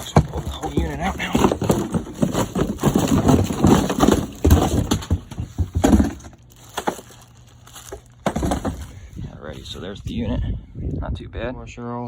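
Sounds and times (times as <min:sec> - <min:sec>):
cardboard box crackling and rustling: 0:00.0 - 0:09.8
knocks: 0:08.2 - 0:09.0.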